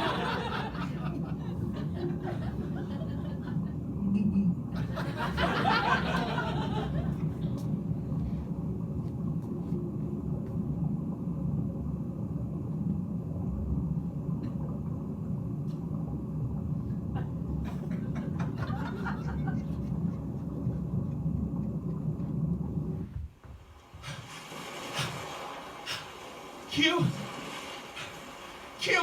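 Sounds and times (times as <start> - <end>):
car engine rumble: 6.9 - 23.4.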